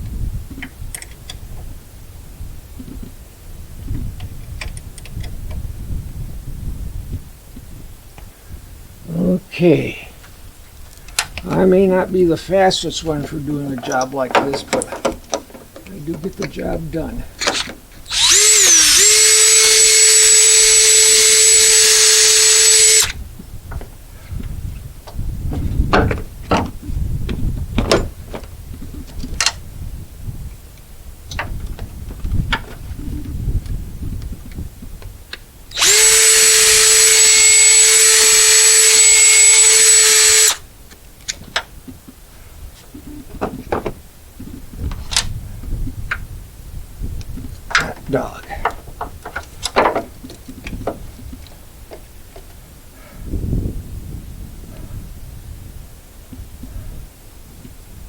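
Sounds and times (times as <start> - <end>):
power drill whining: 17.4 - 23.2, 35.7 - 40.6.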